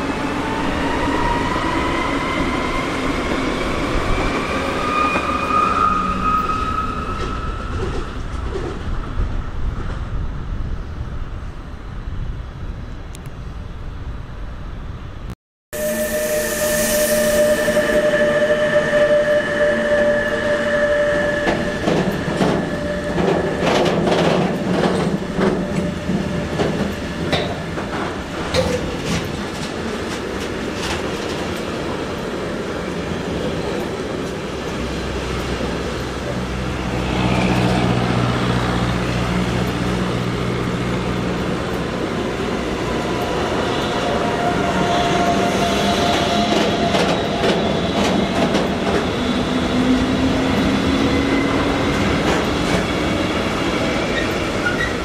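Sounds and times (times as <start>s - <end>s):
train wheels clicking over joints: 21.4s - 36.7s, 41.4s - 55.0s.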